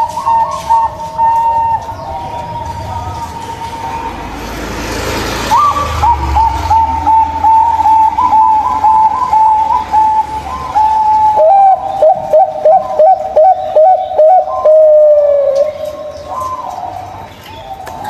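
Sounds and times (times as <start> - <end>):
dove cooing: 0.0 - 4.6, 5.3 - 18.0.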